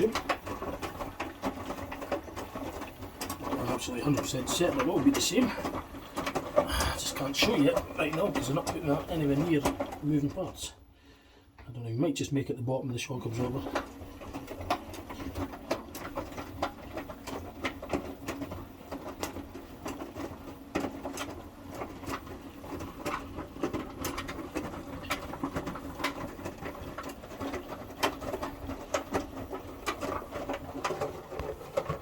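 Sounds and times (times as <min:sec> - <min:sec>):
washing machine motor hum: 0:00.0 - 0:32.0
clicks and knocks of tumbling load: 0:12.9 - 0:32.0.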